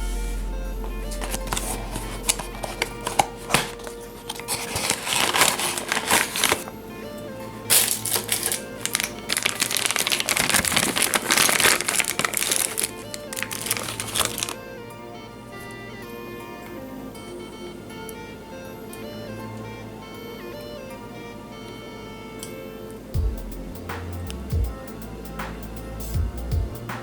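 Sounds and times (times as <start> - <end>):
background music: 0.0 - 27.0
packaging crinkling: 1.1 - 6.7, 7.6 - 14.6.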